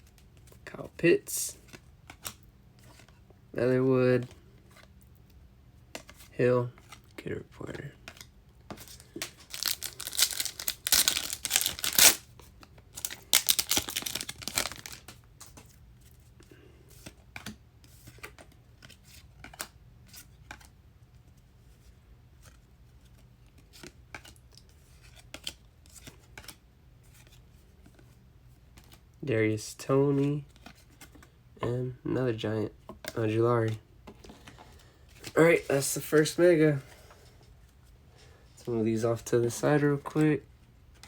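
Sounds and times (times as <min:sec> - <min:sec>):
cards clicking and tapping: 0:08.1 - 0:12.2, 0:13.0 - 0:15.6
foil wrapper tearing and crinkling: 0:09.1 - 0:12.2, 0:13.0 - 0:15.2.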